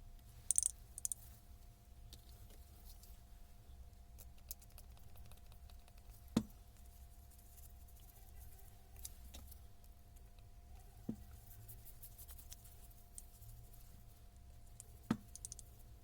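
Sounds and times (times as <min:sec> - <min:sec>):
low steady hum: 0:00.0 - 0:16.0
small clicks of tool parts: 0:00.5 - 0:01.2, 0:14.8 - 0:15.7.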